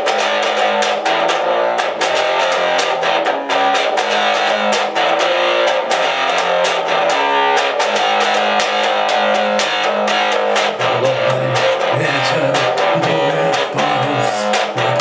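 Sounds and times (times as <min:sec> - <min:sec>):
bass guitar: 0:00.0 - 0:15.0
strummed electric guitars: 0:00.0 - 0:15.0
steady drum beat: 0:05.8 - 0:15.0.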